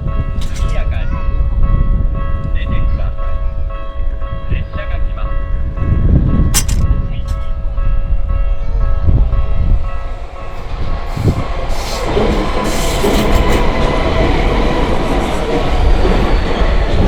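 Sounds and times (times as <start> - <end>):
level crossing warning bell: 0.0 - 17.0
train wheels clattering on rails: 10.4 - 17.0.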